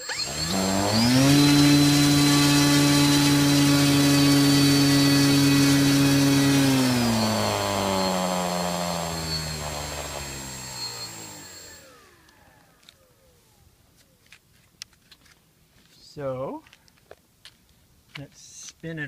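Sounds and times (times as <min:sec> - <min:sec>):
electric motor and propeller whir: 0:00.0 - 0:13.6.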